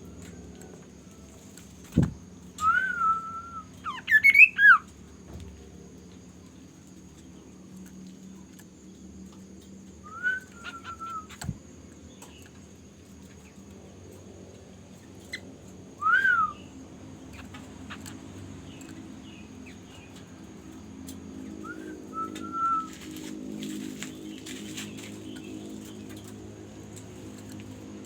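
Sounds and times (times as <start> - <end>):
bird whistled calls: 2.6 - 4.8, 10.0 - 11.6, 16.0 - 16.7, 21.6 - 23.0.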